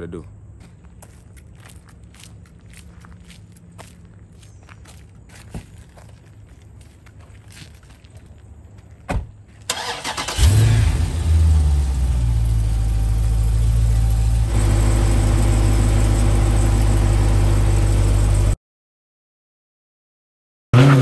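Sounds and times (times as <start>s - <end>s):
car engine cranking: 9.7s - 16.9s
car engine revving: 9.7s - 18.4s, 20.8s - 21.0s
car engine idling: 9.7s - 18.6s.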